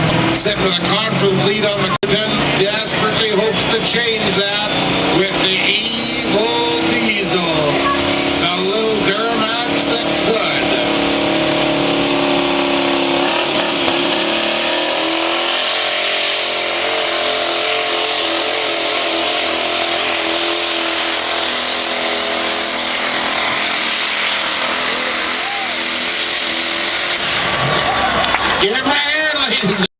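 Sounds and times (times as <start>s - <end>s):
diesel truck engine at full throttle: 0.0s - 29.9s.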